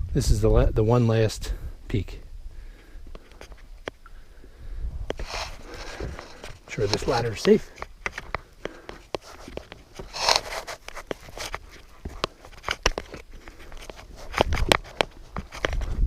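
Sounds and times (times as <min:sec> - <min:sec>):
wind rumble on microphone: 0:00.0 - 0:02.6, 0:04.5 - 0:06.3, 0:14.1 - 0:16.0
rustling: 0:03.2 - 0:16.0.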